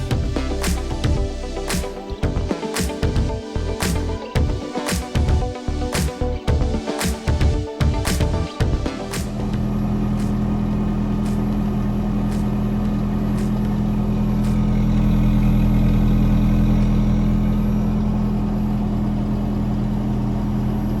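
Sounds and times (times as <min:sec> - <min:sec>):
car engine idling: 0:00.0 - 0:04.6, 0:07.4 - 0:21.0.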